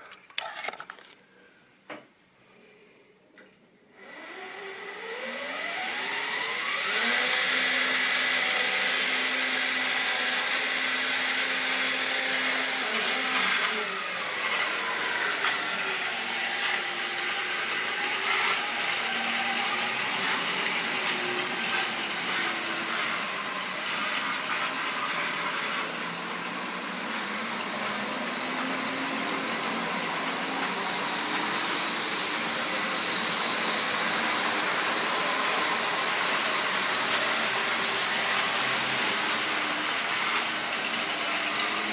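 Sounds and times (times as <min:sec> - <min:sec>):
model train motor whining: 0:04.0 - 0:41.9
wheels hissing on track: 0:13.2 - 0:41.9.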